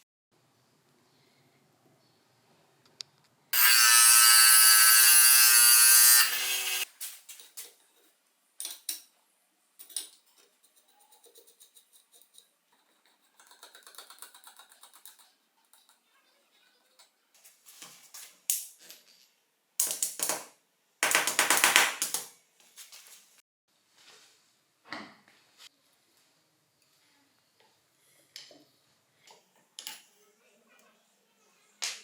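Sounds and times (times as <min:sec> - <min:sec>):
small power tool motor: 0:03.6 - 0:06.9.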